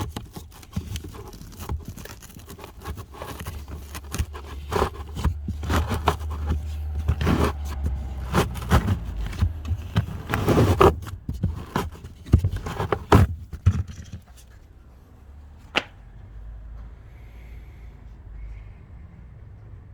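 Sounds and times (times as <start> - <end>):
plastic parts scraping and clicking: 0.0 - 14.7.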